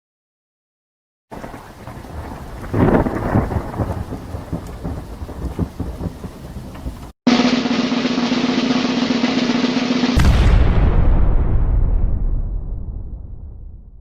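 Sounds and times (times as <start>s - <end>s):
rain hiss: 1.3s - 7.1s
thunder rumbling: 1.3s - 7.1s, 9.3s - 14.0s.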